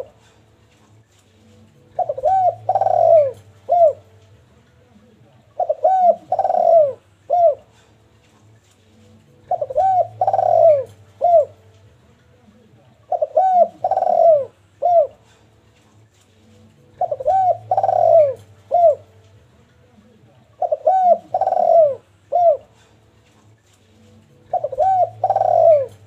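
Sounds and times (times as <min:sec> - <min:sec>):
dove cooing: 0:00.0 - 0:00.4, 0:01.8 - 0:04.2, 0:05.5 - 0:07.9, 0:09.4 - 0:11.7, 0:13.0 - 0:15.4, 0:16.8 - 0:19.2, 0:20.5 - 0:23.0, 0:24.3 - 0:26.0.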